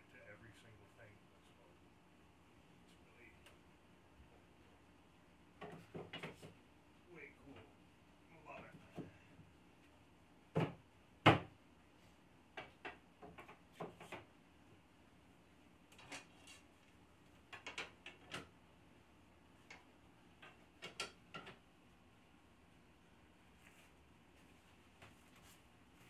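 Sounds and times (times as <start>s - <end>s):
knocks on wooden boards: 10.5s - 11.5s.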